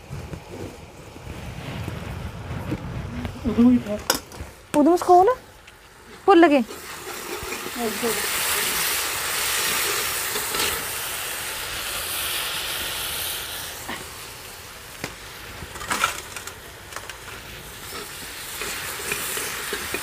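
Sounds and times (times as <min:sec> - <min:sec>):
paste sizzling in oil: 0:04.9 - 0:20.0.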